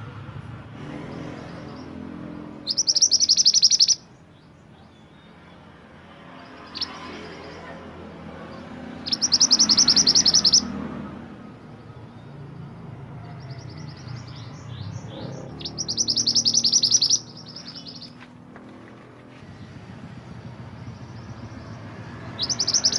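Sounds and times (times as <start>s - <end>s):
songbird singing trills: 1.1s - 5.7s, 6.3s - 7.8s, 8.4s - 10.8s, 13.2s - 18.7s, 20.3s - 22.9s.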